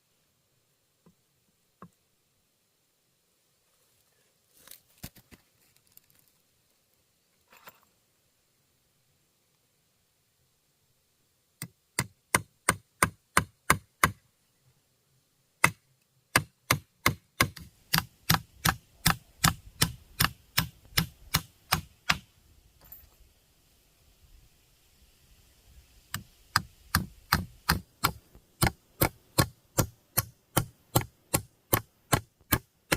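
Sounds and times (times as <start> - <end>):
hand tool striking wood: 15.6 - 22.3, 26.1 - 32.9.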